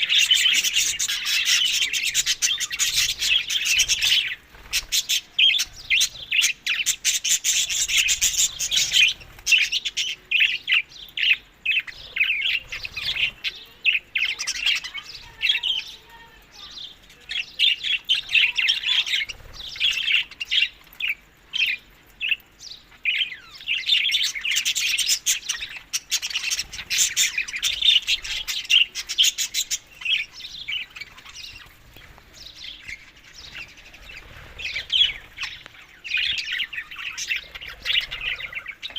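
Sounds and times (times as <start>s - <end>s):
budgerigars chirping: 0.0s - 13.6s, 23.1s - 38.9s.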